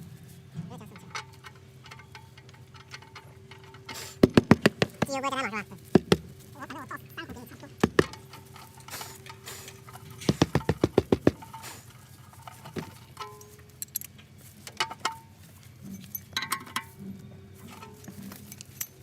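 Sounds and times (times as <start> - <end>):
metallic clinks and taps: 1.0 - 5.1, 7.8 - 17.0
sharp knocks: 4.2 - 5.2, 5.9 - 6.3, 7.8 - 8.2, 10.2 - 11.5.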